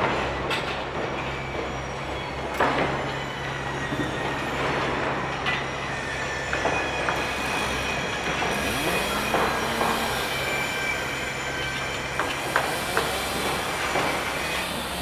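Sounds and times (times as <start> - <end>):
heavy machinery engine hum: 0.0 - 15.0
faint high squeal: 1.1 - 15.0.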